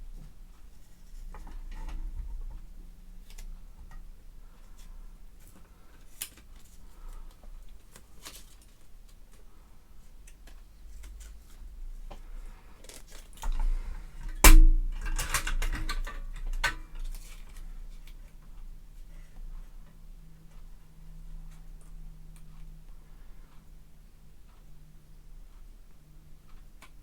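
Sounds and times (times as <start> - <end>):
hard objects clicking and knocking: 13.4 - 17.2.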